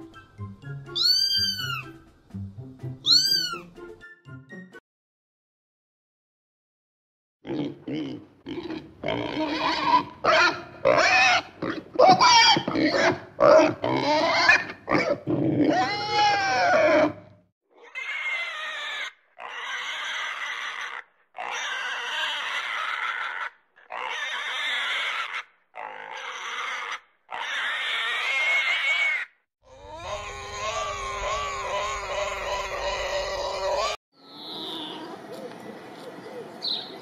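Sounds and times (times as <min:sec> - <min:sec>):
pig grunting and squealing: 0:01.0 - 0:01.9, 0:07.4 - 0:35.2.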